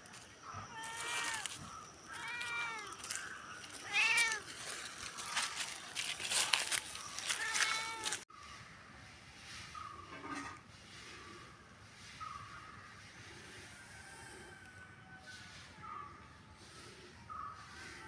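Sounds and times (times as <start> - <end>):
cat meowing: 2.1 - 3.0, 3.8 - 4.5, 7.3 - 8.2.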